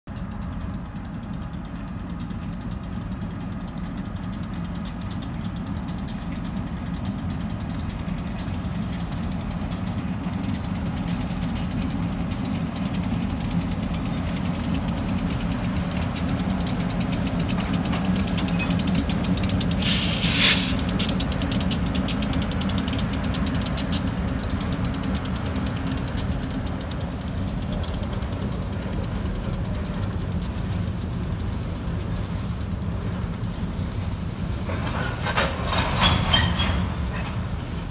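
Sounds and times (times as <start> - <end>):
diesel locomotive rumble: 0.0 - 37.9
wheels clicking on rails: 0.1 - 37.9
loud hiss: 19.8 - 20.8.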